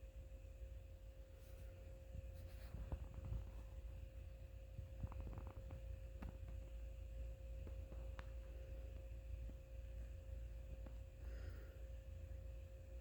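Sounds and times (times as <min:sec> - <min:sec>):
faint high hum: 0:00.0 - 0:13.0
light clicks and taps: 0:07.6 - 0:09.6.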